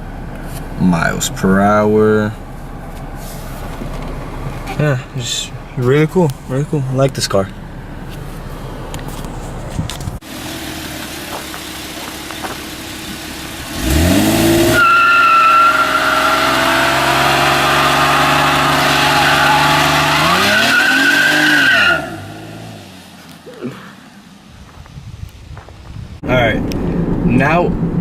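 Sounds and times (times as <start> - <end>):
car engine revving: 0.0 - 24.6
tyres squealing: 13.8 - 23.8.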